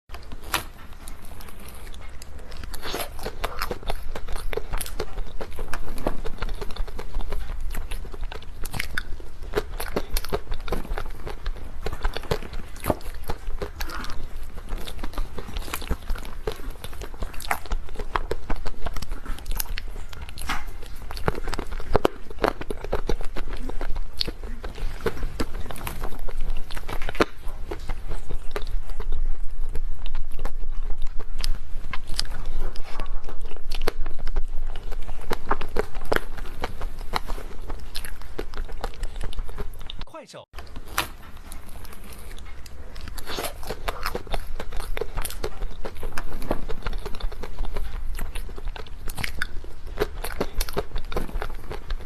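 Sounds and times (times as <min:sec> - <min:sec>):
person chewing cake: 0:00.1 - 0:52.0.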